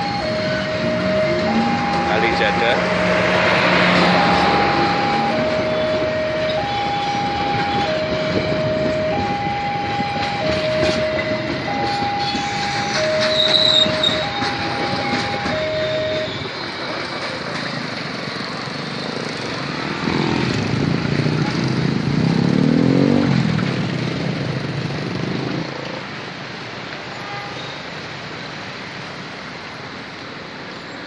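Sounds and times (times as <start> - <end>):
train wheels rumbling on rails: 0.4 - 22.3
level-crossing alarm two-tone chime: 4.0 - 7.7, 9.2 - 16.4
train wheel squeal: 12.0 - 17.9.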